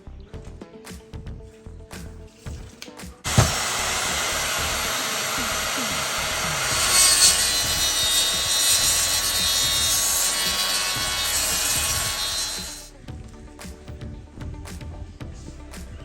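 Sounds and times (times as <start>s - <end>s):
power saw cutting timber: 3.3s - 12.9s.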